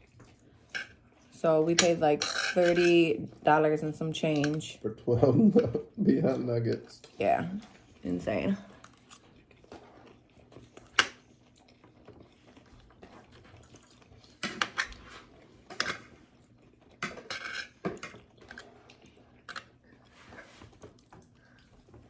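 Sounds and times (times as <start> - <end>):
cutlery clinking on a plate: 1.8 - 3.0, 17.0 - 18.2
chewing: 8.6 - 22.0.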